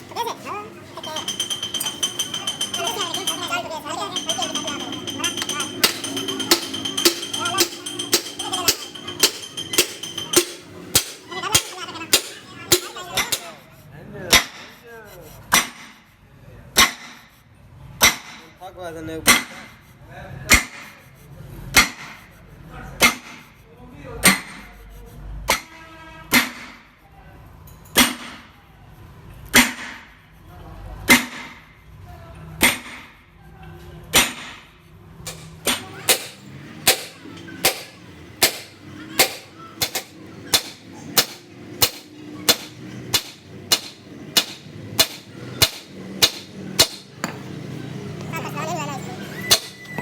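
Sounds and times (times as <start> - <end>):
hammer blows on metal: 4.1 - 13.6, 35.3 - 47.5, 49.5 - 50.0.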